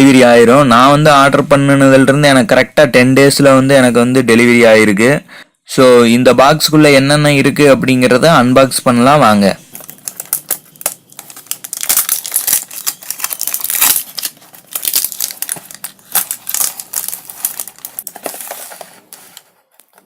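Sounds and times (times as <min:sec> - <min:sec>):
packaging being torn open: 0:09.8 - 0:20.0.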